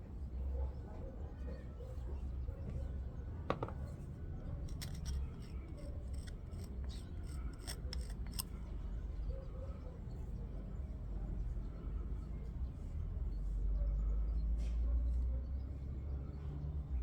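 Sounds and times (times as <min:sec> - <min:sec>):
metallic clicks and scrapes: 0:04.6 - 0:08.7.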